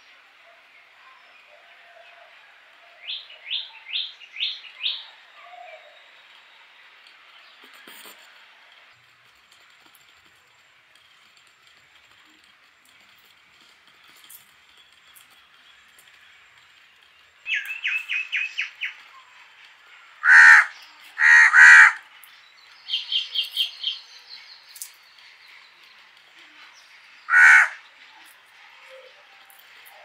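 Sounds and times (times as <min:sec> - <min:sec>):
birds calling short notes: 0:20.2 - 0:22.0, 0:27.3 - 0:27.8
loud harsh bird calls: 0:20.2 - 0:22.1, 0:27.1 - 0:28.0.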